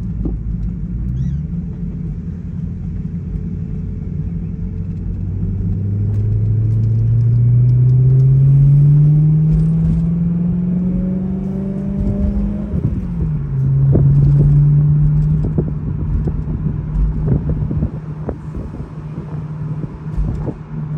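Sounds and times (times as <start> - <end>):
car engine accelerating: 0.0 - 20.9
metallic rattle under car: 8.1 - 20.9.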